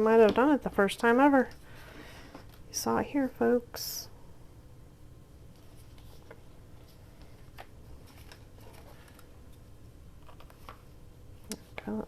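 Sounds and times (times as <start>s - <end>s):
low steady room hum: 0.0s - 12.0s
paper rustling: 5.6s - 9.6s, 10.2s - 10.9s.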